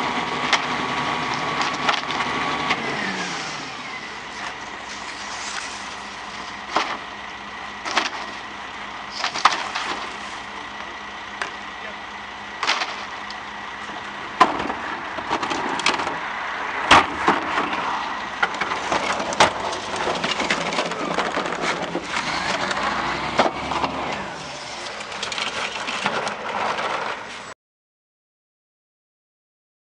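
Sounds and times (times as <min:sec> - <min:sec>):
garbage truck packer crushing debris: 0:00.0 - 0:08.5, 0:09.1 - 0:10.4, 0:12.6 - 0:13.3, 0:13.9 - 0:27.5
wood cracking and snapping: 0:00.4 - 0:02.8, 0:06.4 - 0:07.1, 0:07.8 - 0:08.4, 0:09.2 - 0:10.2, 0:12.6 - 0:16.2, 0:16.9 - 0:27.2.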